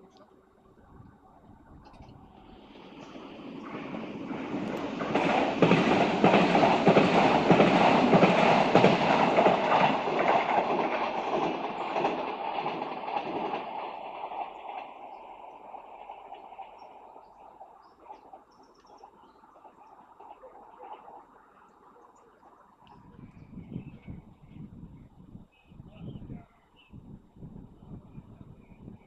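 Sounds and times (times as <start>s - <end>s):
train wheels clattering over rail joints: 2.8s - 17.4s.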